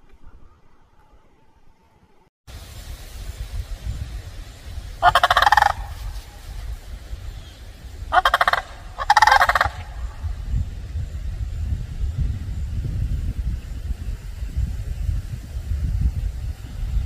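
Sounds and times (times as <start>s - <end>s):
large bird rolling pulsed calls: 4.9s - 10.8s.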